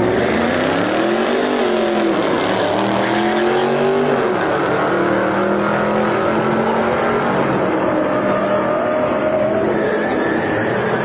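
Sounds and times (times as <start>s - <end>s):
race car engine at full throttle: 0.0s - 11.0s.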